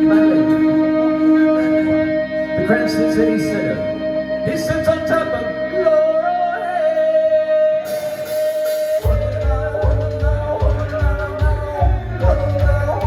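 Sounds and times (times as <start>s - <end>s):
live band with singing: 0.0s - 13.0s
bass and drums heavy beat: 7.9s - 13.0s.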